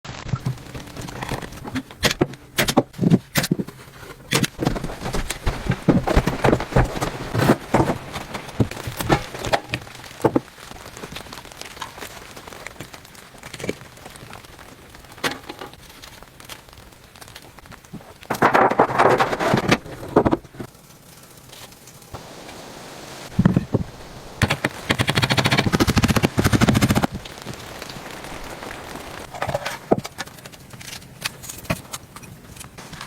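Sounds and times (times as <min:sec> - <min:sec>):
sharp knocks and crackles: 0:00.1 - 0:33.0
steady hiss: 0:20.4 - 0:30.2.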